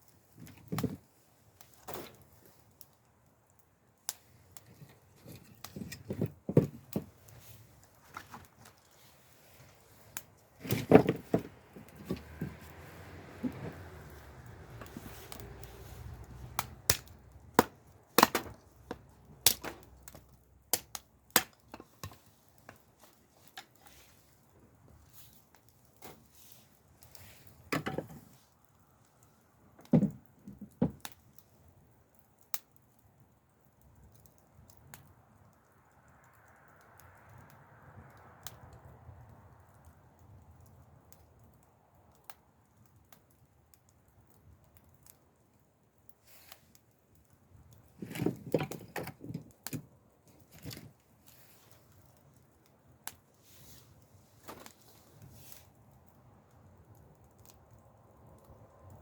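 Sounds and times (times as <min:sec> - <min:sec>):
wood cracking and knocking: 0:00.4 - 0:01.1, 0:04.6 - 0:08.9, 0:10.2 - 0:22.8, 0:27.7 - 0:28.4, 0:29.8 - 0:31.2, 0:47.9 - 0:51.1.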